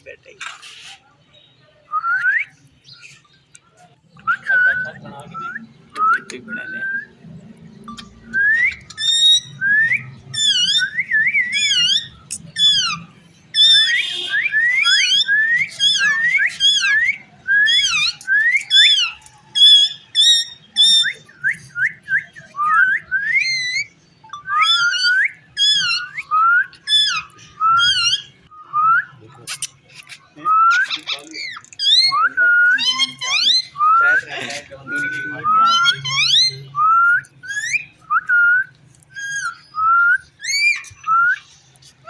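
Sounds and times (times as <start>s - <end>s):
parakeet whistling: 7.9s - 29.7s, 30.5s - 41.6s.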